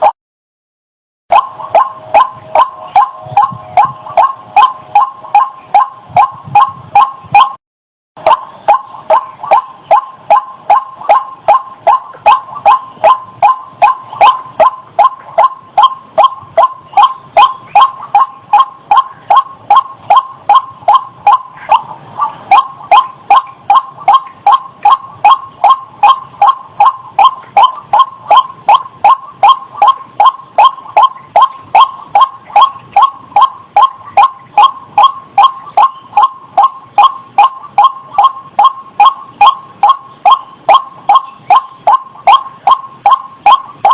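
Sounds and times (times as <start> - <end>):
waterhen repeated call: 1.3 - 7.6, 8.2 - 43.9.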